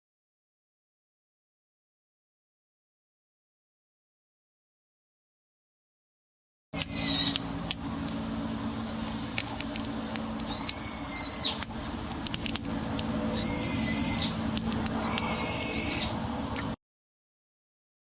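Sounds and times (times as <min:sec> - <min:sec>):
bird high calls: 0:06.8 - 0:07.4, 0:10.4 - 0:11.7, 0:13.2 - 0:16.8
steady low hum: 0:06.8 - 0:16.8
wood fire crackling: 0:07.3 - 0:16.7.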